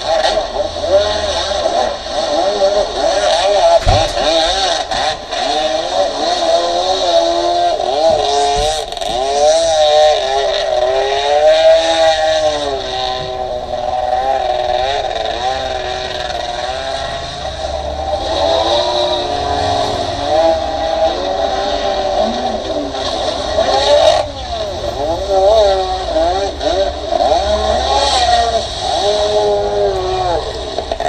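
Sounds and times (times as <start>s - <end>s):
jet ski engine running: 0.0s - 31.0s.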